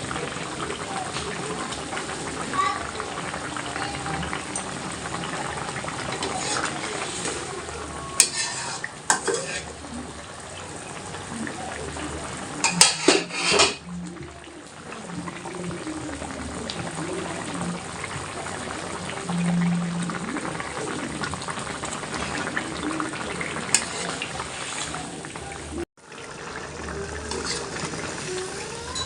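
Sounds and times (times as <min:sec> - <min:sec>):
curry sizzling and bubbling: 0:00.0 - 0:29.0.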